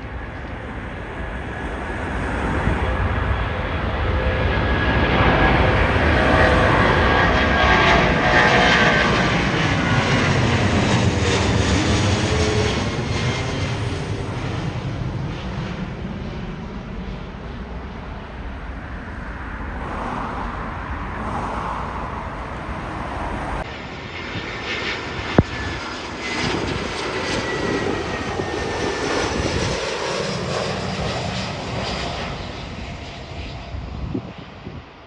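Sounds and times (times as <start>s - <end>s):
wind buffeting microphone: 0.0s - 16.0s, 18.8s - 25.8s
jet engines roaring: 0.0s - 24.5s.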